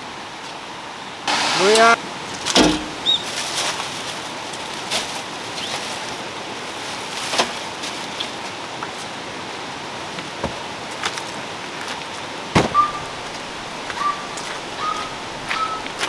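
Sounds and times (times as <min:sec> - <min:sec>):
mountain stream rushing: 0:01.3 - 0:03.2, 0:11.5 - 0:16.0
camping gear knocking and clattering: 0:02.5 - 0:03.6, 0:10.0 - 0:16.0.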